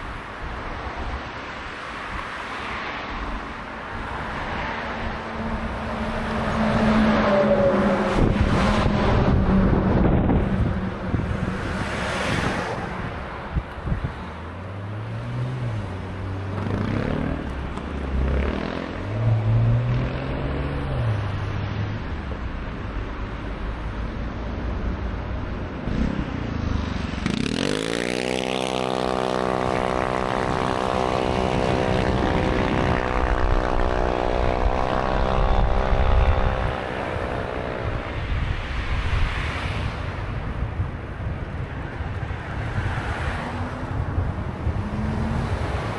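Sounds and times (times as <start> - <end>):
traffic noise: 0.0 - 45.9
wind on microphone: 5.1 - 14.3, 28.3 - 45.9.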